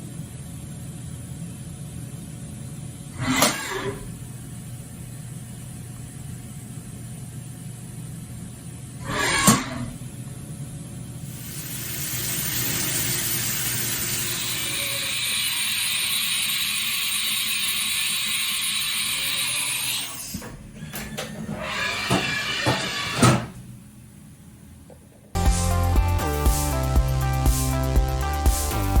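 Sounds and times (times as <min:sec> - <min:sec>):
steady machine hiss: 0:11.2 - 0:20.4.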